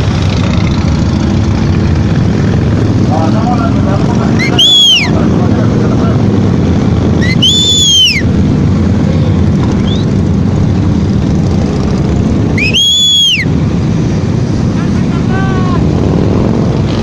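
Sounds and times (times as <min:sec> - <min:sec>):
motorcycle engines rumbling: 0:00.0 - 0:17.0
wind: 0:00.0 - 0:17.0
high rising and falling whistle: 0:04.4 - 0:05.2, 0:07.2 - 0:08.3, 0:12.5 - 0:13.6.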